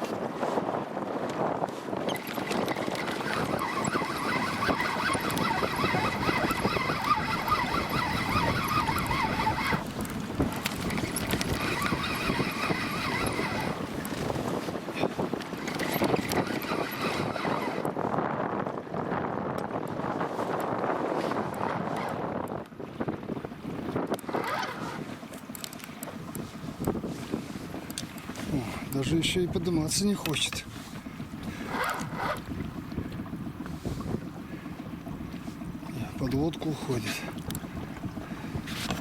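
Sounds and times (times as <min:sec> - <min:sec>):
wind on microphone: 0:00.0 - 0:39.0
fishing reel whirring: 0:02.0 - 0:14.3, 0:15.5 - 0:18.0, 0:24.2 - 0:27.0, 0:31.4 - 0:32.6.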